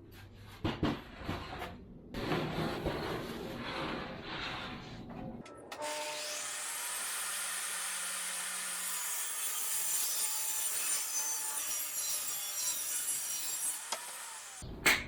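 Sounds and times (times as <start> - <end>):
power saw cutting wood: 5.8 - 14.6.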